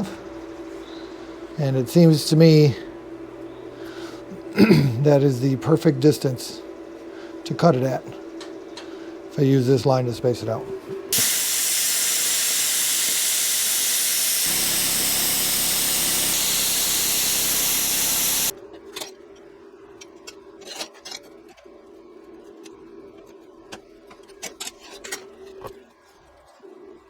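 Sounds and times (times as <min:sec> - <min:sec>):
low buzz of cutting: 0:11.1 - 0:18.5
plasma cutter hissing: 0:11.1 - 0:18.5.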